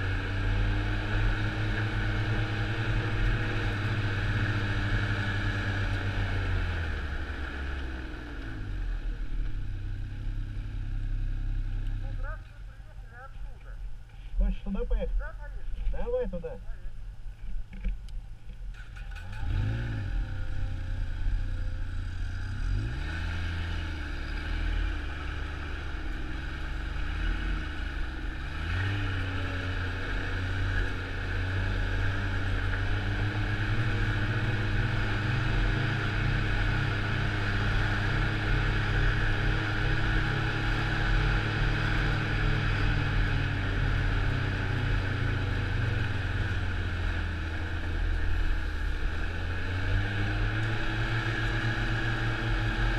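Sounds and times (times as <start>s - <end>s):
snowmobile engine revving: 18.8s - 52.9s.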